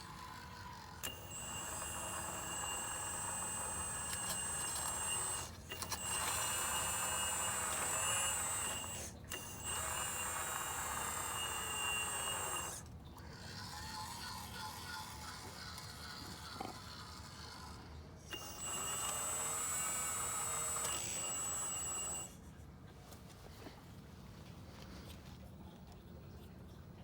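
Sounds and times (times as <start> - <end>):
excavator motors whining: 0.0 - 22.4.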